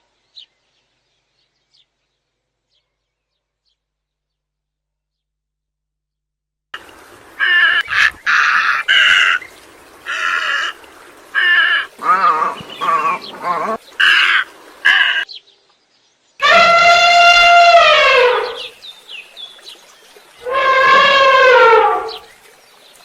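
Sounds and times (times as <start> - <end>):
long falling animal call: 7.4 - 9.4, 10.0 - 15.2, 16.4 - 18.8, 20.4 - 22.3.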